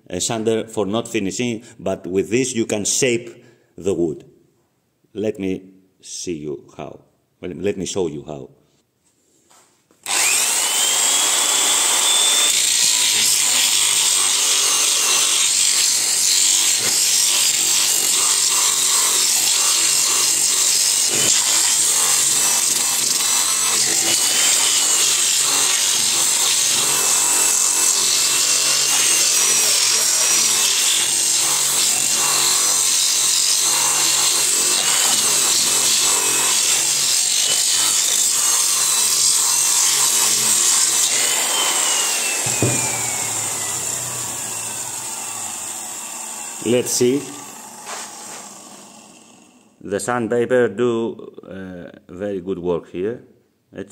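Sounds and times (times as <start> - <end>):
power sander motor whine: 10.0 - 49.6
sandpaper grinding wood: 10.2 - 45.5, 46.6 - 49.1.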